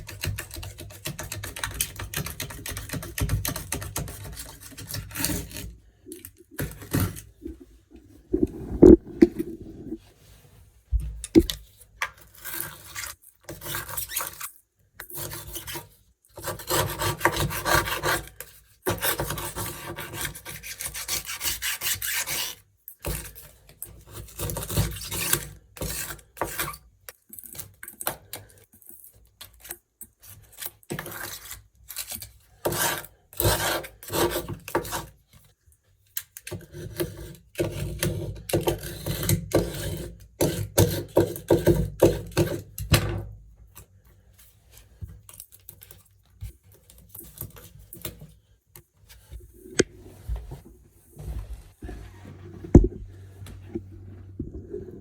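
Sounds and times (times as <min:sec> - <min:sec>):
blade scraping sealant: 0:00.0 - 0:07.6, 0:29.5 - 0:35.2, 0:36.5 - 0:42.8.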